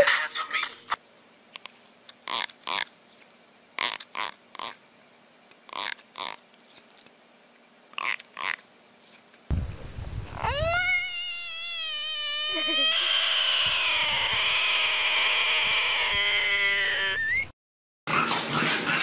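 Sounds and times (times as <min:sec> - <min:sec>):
frog screaming: 0:02.3 - 0:02.9, 0:05.7 - 0:06.4, 0:10.4 - 0:17.5.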